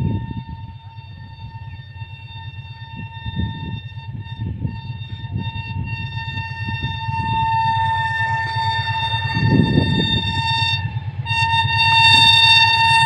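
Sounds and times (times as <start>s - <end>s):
train horn: 0.0s - 13.0s
train rumbling on track: 0.0s - 13.0s.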